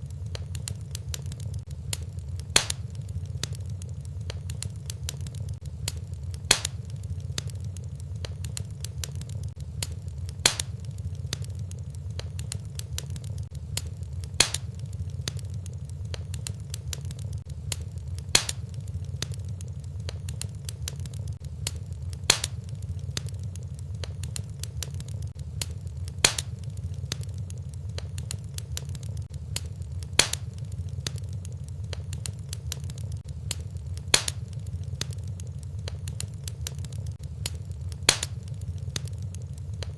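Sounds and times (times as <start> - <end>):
fire crackling with low rumble: 0.0 - 39.9
loud fire pop: 2.5 - 2.9, 6.4 - 6.9, 10.4 - 10.8, 14.4 - 14.8, 22.3 - 22.6, 26.2 - 26.6, 30.2 - 30.6, 34.1 - 34.5, 38.1 - 38.4.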